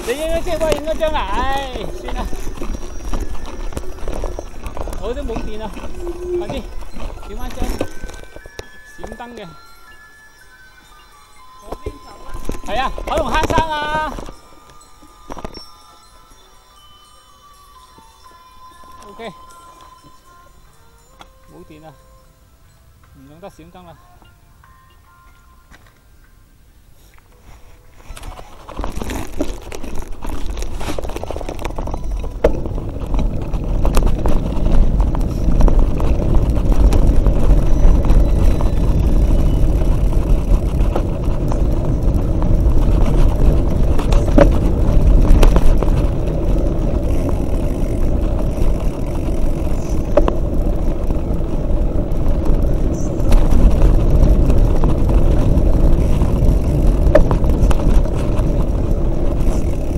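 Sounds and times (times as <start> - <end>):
wind on microphone: 0.0 - 9.2, 28.1 - 59.9
bike riding rumble: 0.0 - 59.9.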